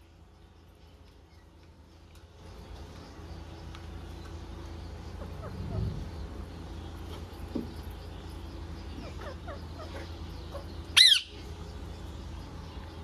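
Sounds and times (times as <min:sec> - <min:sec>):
low steady hum: 0:00.0 - 0:13.0
parrot chirping: 0:09.0 - 0:11.4.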